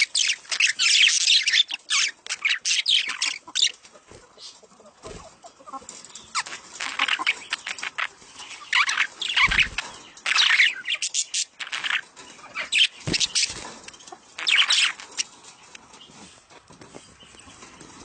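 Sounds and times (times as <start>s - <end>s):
budgerigars chattering: 0.0s - 3.8s, 5.6s - 15.3s.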